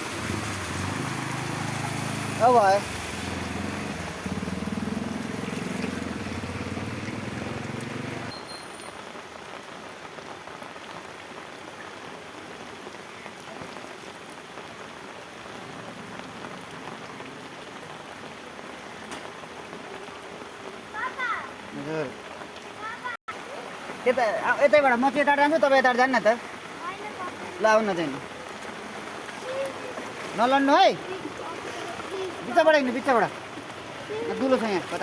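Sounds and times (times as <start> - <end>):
heavy rain hissing: 0.0 - 8.3, 20.6 - 35.0
low engine hum: 0.0 - 8.3.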